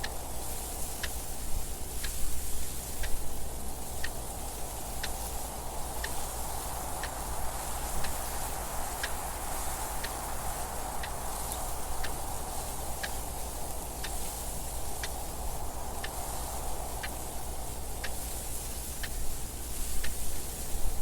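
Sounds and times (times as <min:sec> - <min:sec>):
clock ticking: 0:03.0 - 0:18.3, 0:18.9 - 0:19.3.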